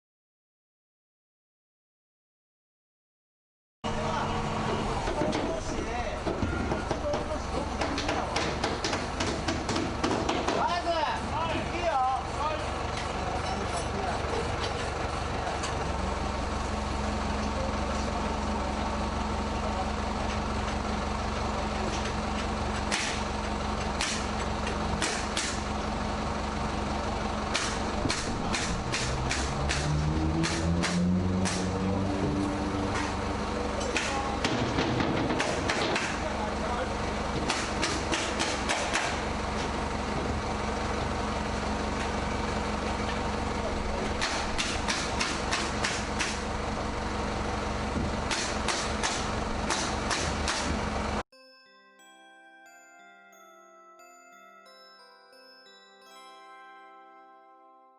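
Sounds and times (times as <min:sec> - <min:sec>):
low machine hum: 0:03.9 - 0:51.2
sharp knocks: 0:06.2 - 0:10.7, 0:27.5 - 0:31.7, 0:33.9 - 0:36.2, 0:37.4 - 0:39.2, 0:44.2 - 0:46.4, 0:48.0 - 0:50.8.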